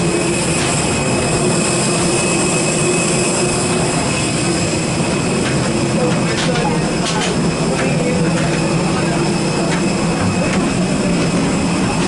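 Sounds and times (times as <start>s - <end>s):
aircraft low hum: 0.0s - 12.0s
high even whine: 0.0s - 12.0s.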